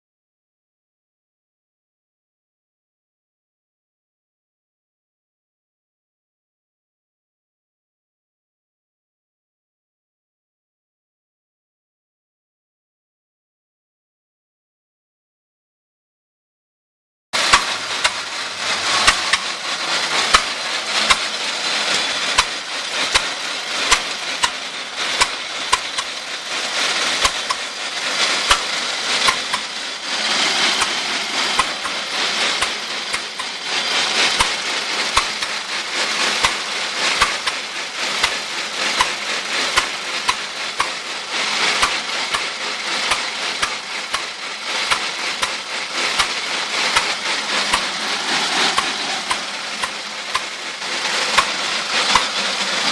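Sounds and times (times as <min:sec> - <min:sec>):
farm machinery clattering: 0:17.4 - 0:52.9.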